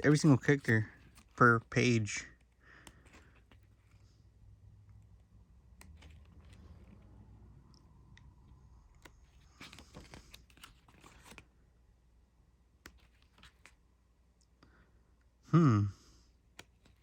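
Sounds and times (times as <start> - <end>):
paper pages turning: 0.1 - 11.6, 12.7 - 13.8, 16.5 - 17.0
person vocal sound: 15.5 - 16.1.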